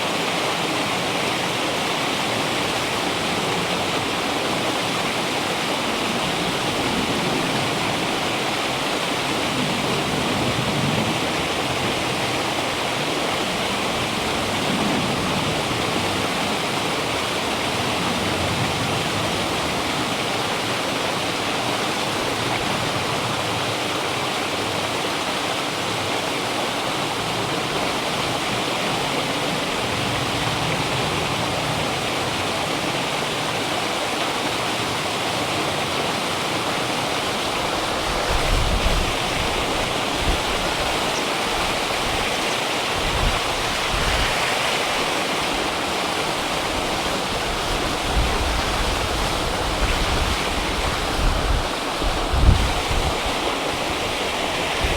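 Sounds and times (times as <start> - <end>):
river rushing: 0.0 - 54.9
wind rumbling on microphone: 36.9 - 54.9.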